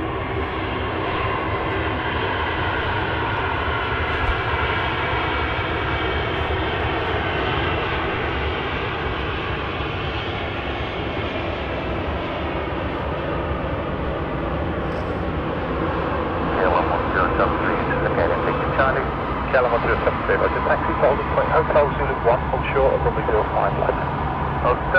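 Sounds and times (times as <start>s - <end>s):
jet engines running: 0.0s - 24.9s.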